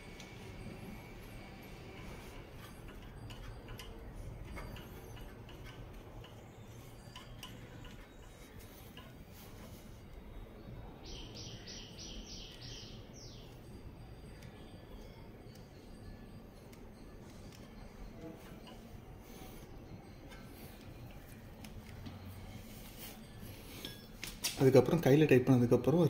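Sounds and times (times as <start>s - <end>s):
low steady background noise: 0.0s - 26.0s
bird chirping: 6.2s - 15.2s.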